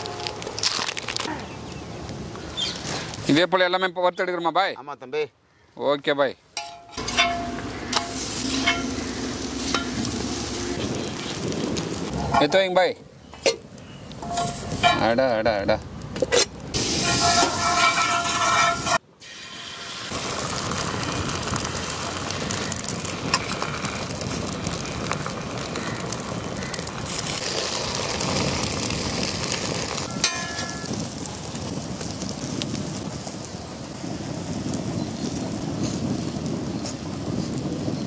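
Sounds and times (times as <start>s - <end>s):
omelette sizzling in oil: 7.0s - 12.3s, 16.7s - 38.0s.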